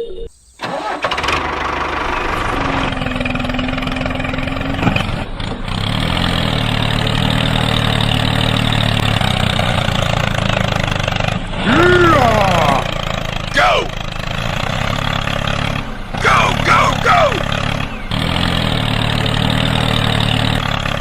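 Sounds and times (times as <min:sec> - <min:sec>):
mini tractor engine running: 0:00.6 - 0:21.0.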